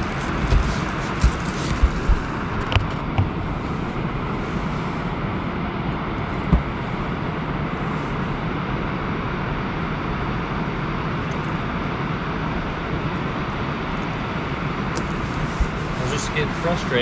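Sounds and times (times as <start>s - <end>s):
wind on microphone: 0.0s - 10.5s, 11.6s - 17.0s
motorboat engine drone: 0.0s - 17.0s
thump: 6.5s - 6.8s.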